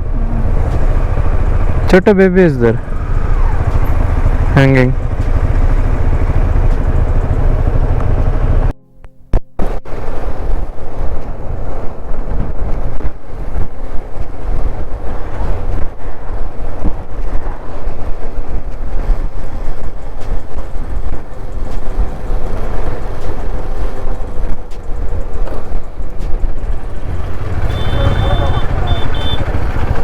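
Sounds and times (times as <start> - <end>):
faint motorcycle engine: 0.0 - 8.8, 20.7 - 30.0
wind buffeting microphone: 9.6 - 30.0.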